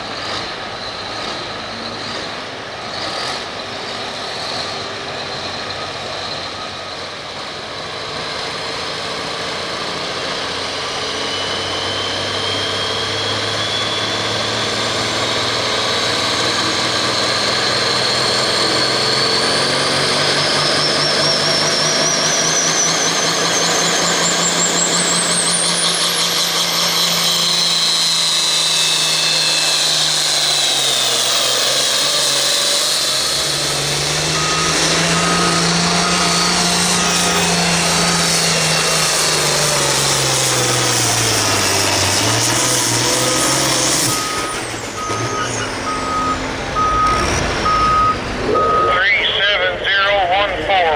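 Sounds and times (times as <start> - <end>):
tractor engine under load: 0.0 - 50.9
turbo whistle rising: 18.4 - 40.2, 41.3 - 49.2.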